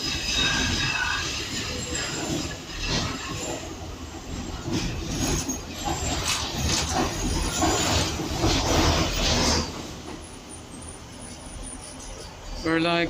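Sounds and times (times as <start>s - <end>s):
high wheel squeal: 0.0s - 13.0s
train wheels rumbling on rails: 0.0s - 13.0s.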